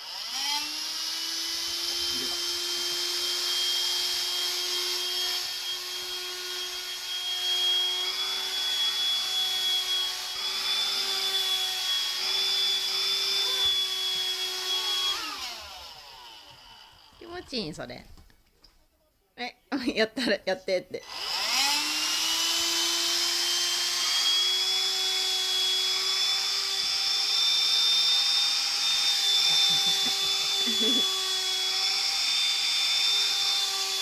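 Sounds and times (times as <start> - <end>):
vacuum cleaner running: 0.0 - 17.5, 21.0 - 34.0.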